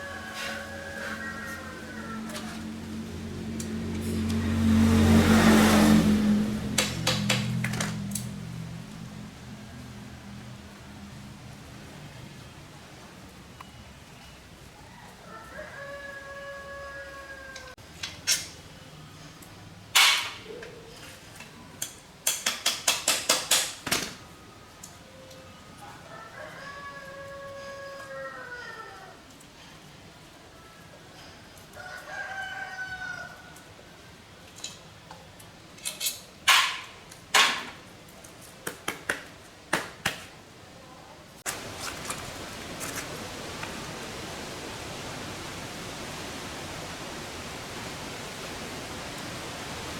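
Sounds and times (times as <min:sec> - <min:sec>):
metal tools clinking: 0:35.8 - 0:36.9.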